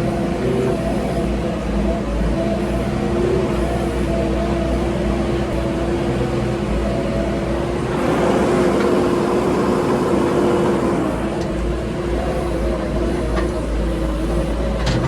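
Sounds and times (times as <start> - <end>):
heavy diesel engine running: 0.0 - 15.0.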